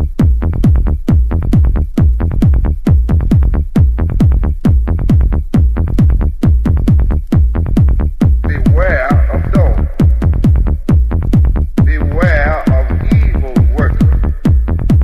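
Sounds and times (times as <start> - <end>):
techno kick drum beat: 0.0 - 15.0
voice sample: 8.4 - 11.0, 11.8 - 14.7.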